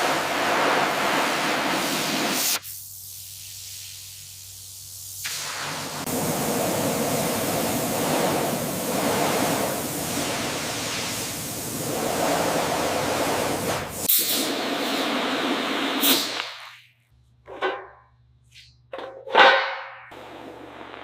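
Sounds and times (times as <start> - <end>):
rushing spray hiss: 0.0 - 16.6.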